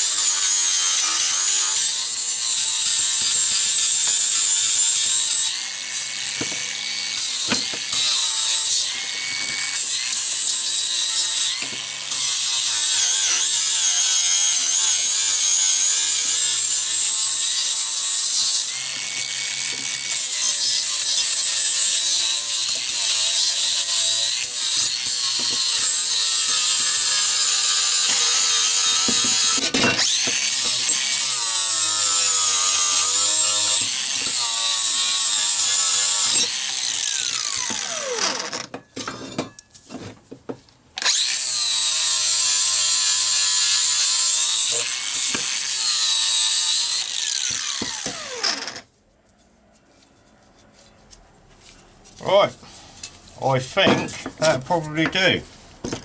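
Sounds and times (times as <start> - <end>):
angle grinder grinding steel: 0.0 - 39.5, 41.0 - 48.8.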